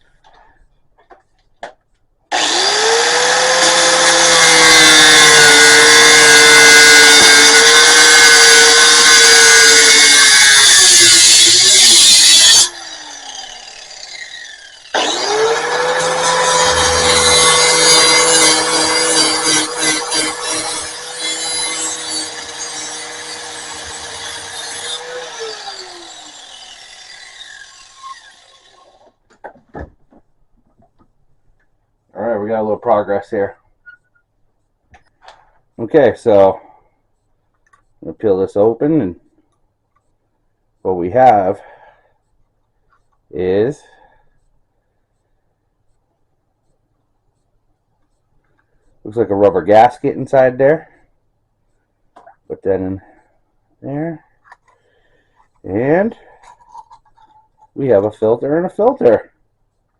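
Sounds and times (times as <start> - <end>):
cutoff wheel grinding steel: 2.3 - 29.1.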